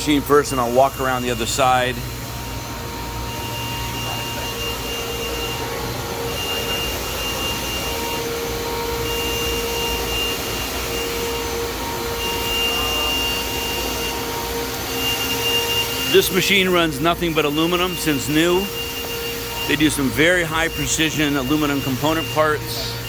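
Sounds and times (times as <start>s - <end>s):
lower machine tone: 0.0s - 23.0s
machinery hum and whir: 0.0s - 23.0s
thin high whine: 0.0s - 23.0s.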